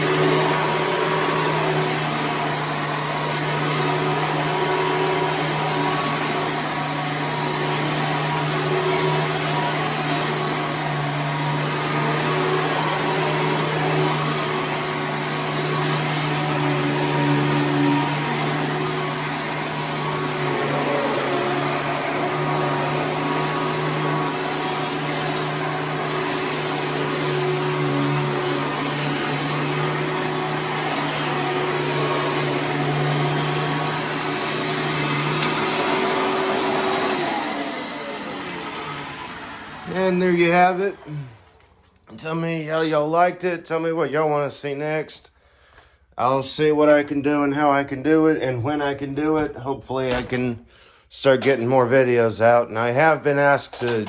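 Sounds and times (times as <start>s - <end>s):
vacuum motor winding down: 0.0s - 42.4s
vacuum cleaner running: 0.0s - 54.0s.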